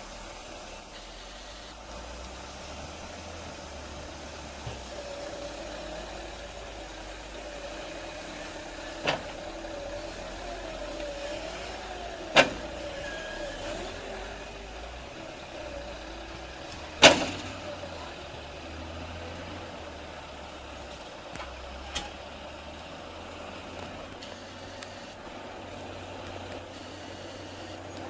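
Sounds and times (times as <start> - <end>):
machine engine running: 0.0 - 28.0
faint clicks: 23.8 - 25.2.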